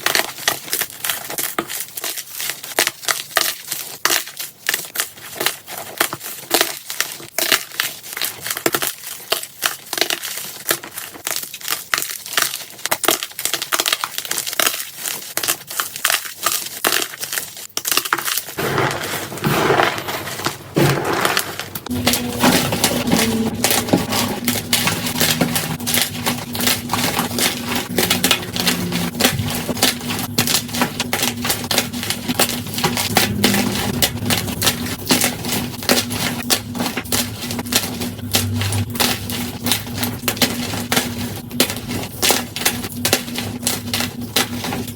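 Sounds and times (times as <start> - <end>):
chalk crunching: 0.0 - 44.9
low steady hum: 18.6 - 44.9.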